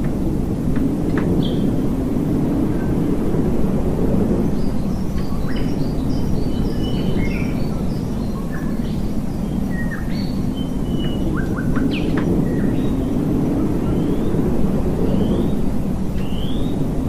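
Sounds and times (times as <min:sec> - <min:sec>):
songbirds singing: 0:01.2 - 0:01.8, 0:04.4 - 0:14.4, 0:15.0 - 0:16.9.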